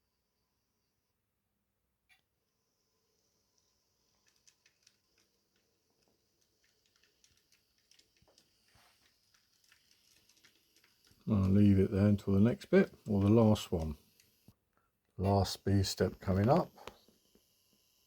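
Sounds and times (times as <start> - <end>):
faint clicks: 3.6 - 11.7.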